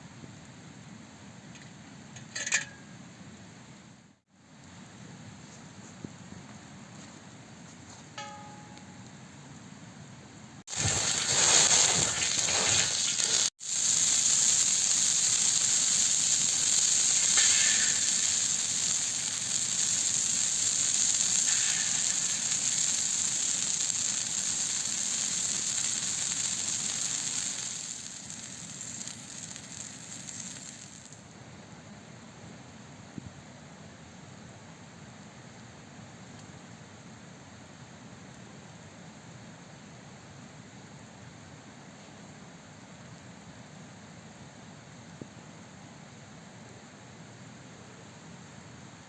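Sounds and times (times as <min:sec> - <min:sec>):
loud sizzling hiss: 0:10.6 - 0:33.6.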